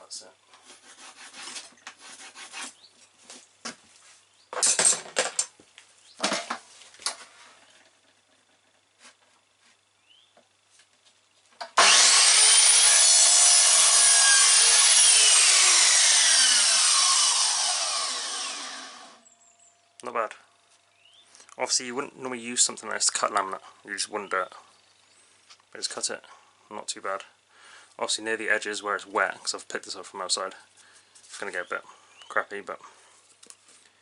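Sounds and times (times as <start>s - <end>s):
mitre saw cutting: 11.8s - 19.2s.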